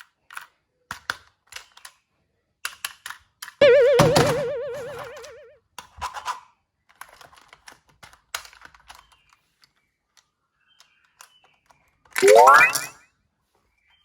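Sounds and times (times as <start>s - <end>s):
warbling tone: 3.6s - 5.5s, 12.2s - 12.9s.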